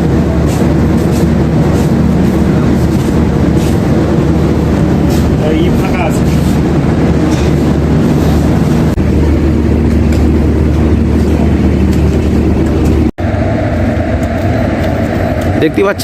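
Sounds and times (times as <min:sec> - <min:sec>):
train engine droning: 0:00.0 - 0:16.0.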